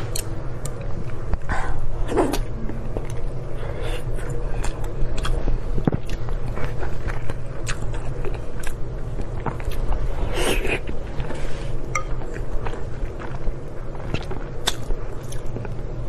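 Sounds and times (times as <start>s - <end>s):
low hum: 0.0s - 16.0s
chewing and biting: 4.6s - 11.3s, 12.2s - 15.8s.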